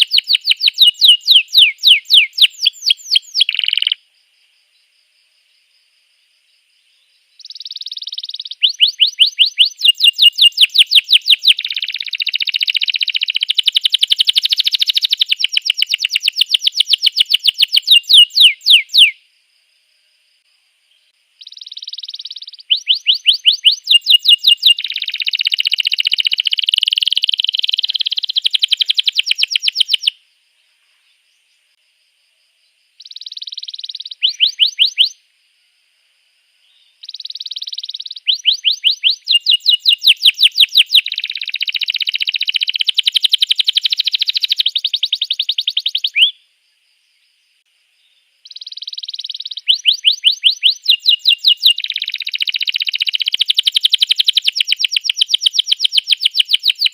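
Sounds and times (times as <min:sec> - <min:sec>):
canary singing: 0:00.0 - 0:04.0, 0:07.4 - 0:19.2, 0:21.4 - 0:30.2, 0:33.0 - 0:35.2, 0:37.0 - 0:46.4, 0:48.4 - 0:56.9.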